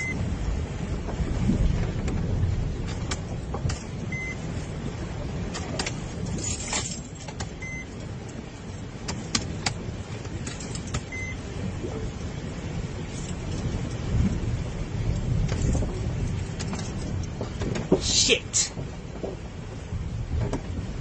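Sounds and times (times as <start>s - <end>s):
vehicle engine low rumble: 0.0s - 21.0s
short high beeps: 11.1s - 11.4s.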